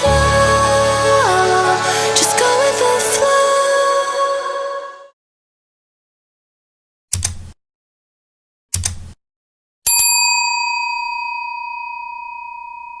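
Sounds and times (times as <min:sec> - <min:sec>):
bright bell ding: 0:09.9 - 0:13.0.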